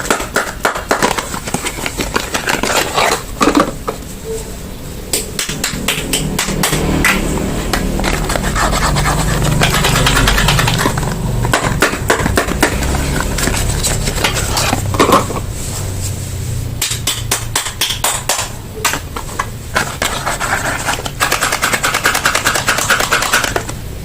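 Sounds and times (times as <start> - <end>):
wrapper crinkling and crackling: 0.9 - 3.7.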